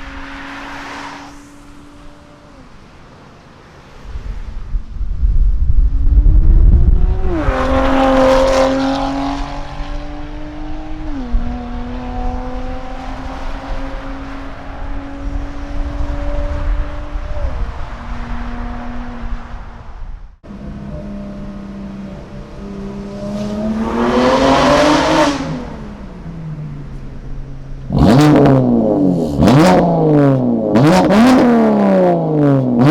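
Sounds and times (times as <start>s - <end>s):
car passing by: 0.0s - 4.8s, 7.1s - 20.0s, 21.4s - 26.6s
car engine accelerating hard: 6.0s - 19.7s, 20.4s - 32.9s.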